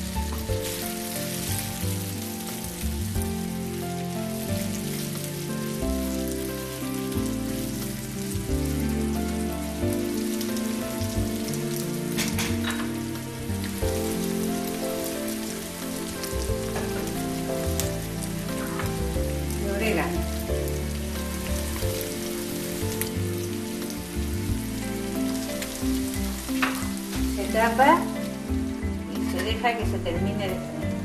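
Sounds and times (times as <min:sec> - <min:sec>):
food sizzling in a frying pan: 0:00.0 - 0:31.0.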